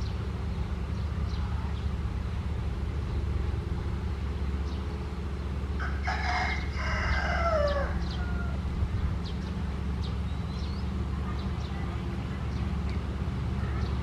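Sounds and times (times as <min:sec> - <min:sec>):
heavy machine engine running: 0:00.0 - 0:14.0
rooster crowing: 0:05.8 - 0:08.6.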